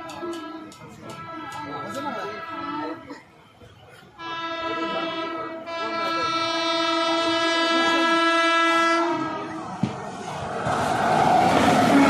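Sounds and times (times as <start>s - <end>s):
train horn blast: 0.1s - 3.0s, 4.2s - 9.7s, 11.8s - 12.0s.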